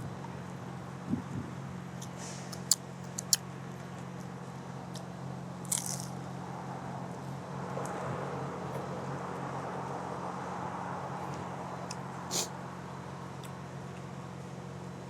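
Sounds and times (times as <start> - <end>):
person eating: 5.7 - 6.1.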